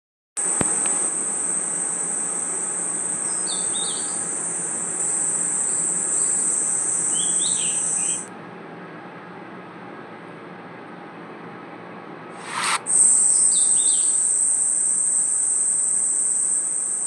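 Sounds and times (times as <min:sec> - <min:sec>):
crickets and night insects chorus: 0:00.4 - 0:08.3, 0:12.4 - 0:17.0
steady hiss: 0:00.4 - 0:08.3, 0:12.4 - 0:17.0
short chirping calls: 0:00.8 - 0:08.3, 0:12.4 - 0:17.0.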